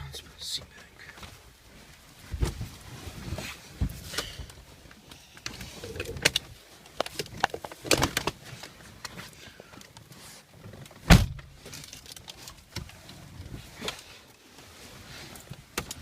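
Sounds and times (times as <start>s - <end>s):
clicks and rustles of car seat: 0.6s - 16.0s
loud thump: 11.1s - 11.5s.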